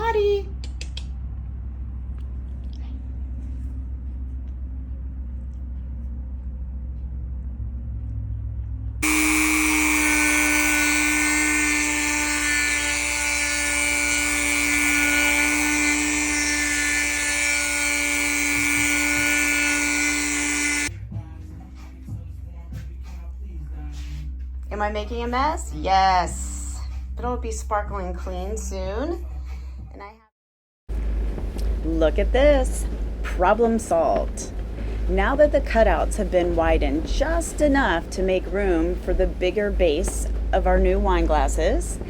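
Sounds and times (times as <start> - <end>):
low steady hum: 0.0 - 30.1, 30.9 - 42.0
power tool whining: 9.0 - 20.9.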